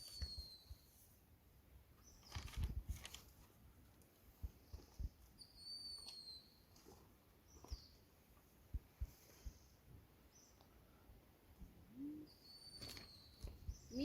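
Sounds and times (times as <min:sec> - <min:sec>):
bird whistle: 0:00.0 - 0:00.8, 0:05.4 - 0:06.6, 0:12.3 - 0:13.5.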